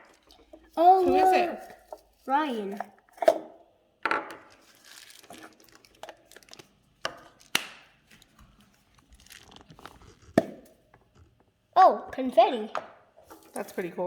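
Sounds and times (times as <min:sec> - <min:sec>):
wrapping crinkling and rustling: 0:04.5 - 0:10.4.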